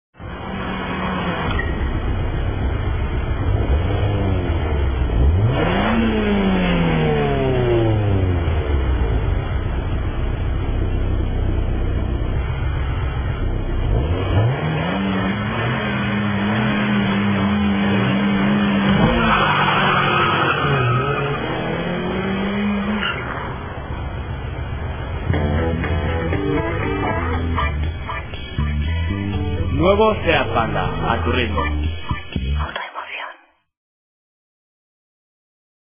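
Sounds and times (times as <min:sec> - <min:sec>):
small car engine revving: 0:00.2 - 0:10.1, 0:12.0 - 0:24.1.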